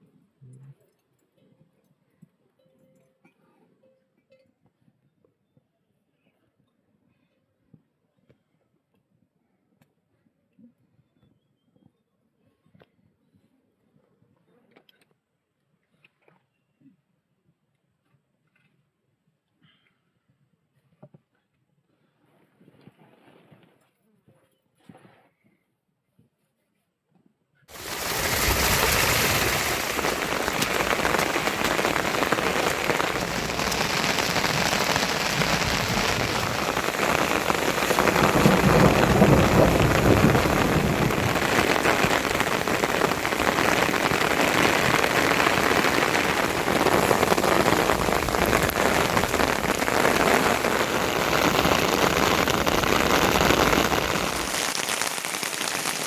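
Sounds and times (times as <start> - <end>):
heavy rain pouring: 27.7 - 56.0.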